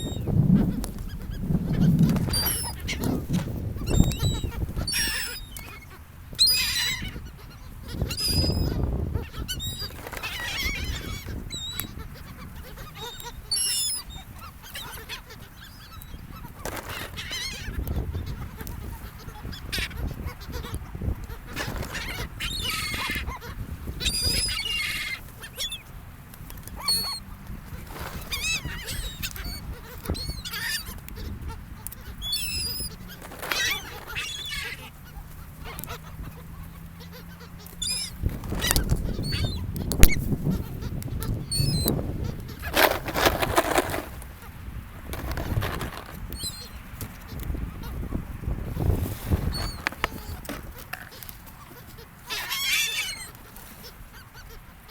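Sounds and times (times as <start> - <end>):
seagulls calling: 0.0 - 54.9.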